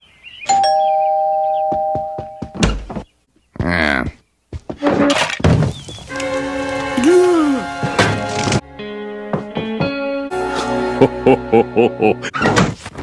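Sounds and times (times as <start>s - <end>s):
two-note chime: 0.5s - 2.4s.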